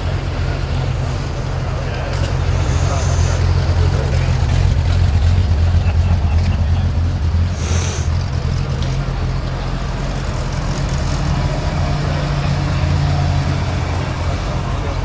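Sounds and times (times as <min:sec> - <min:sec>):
car engine idling: 0:00.0 - 0:15.0
short hiss: 0:02.6 - 0:03.5, 0:07.6 - 0:08.2.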